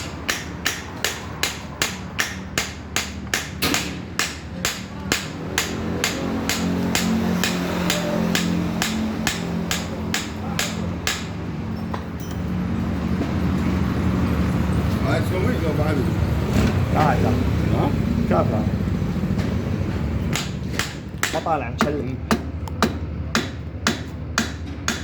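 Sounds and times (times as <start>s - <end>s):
sharp metal knocks: 0.0s - 11.5s, 20.3s - 25.0s.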